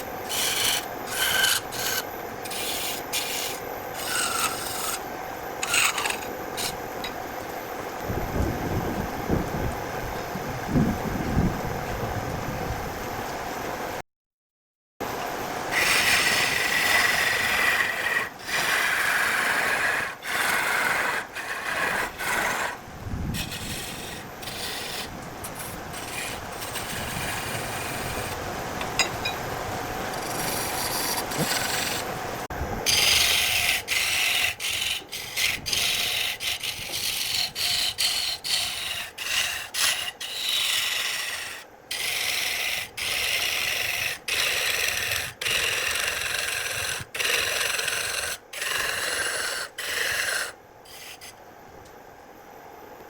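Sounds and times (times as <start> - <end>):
abrasive tool scraping wood: 0.0 - 5.0, 5.6 - 6.8, 15.8 - 29.1, 30.1 - 32.1, 32.9 - 51.4.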